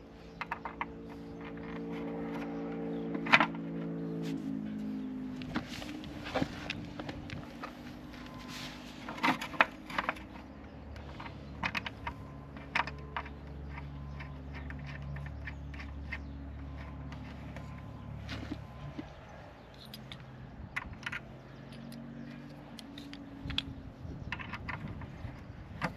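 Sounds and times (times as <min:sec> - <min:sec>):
metal parts clinking: 0:19.7 - 0:23.7.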